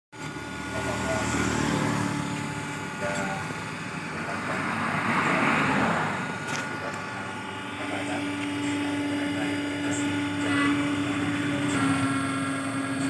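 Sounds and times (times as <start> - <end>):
press motor humming: 0.2 - 13.0.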